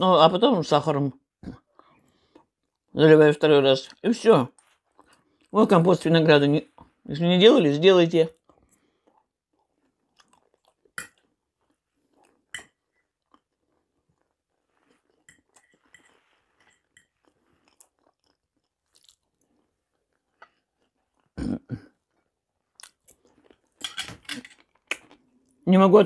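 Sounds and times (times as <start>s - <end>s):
person chewing food: 1.4s - 2.9s, 3.9s - 5.6s, 8.3s - 25.6s.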